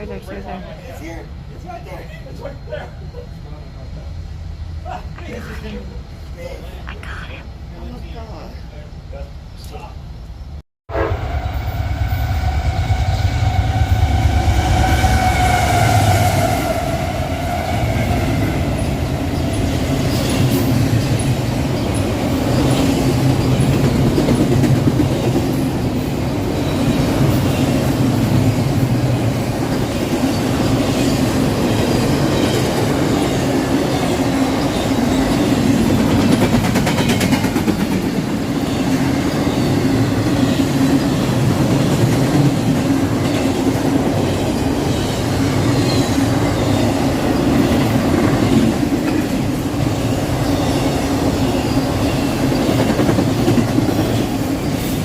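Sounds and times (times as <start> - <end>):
train horn chord: 10.9 - 16.9
train wheels rumbling on rails: 11.2 - 55.0.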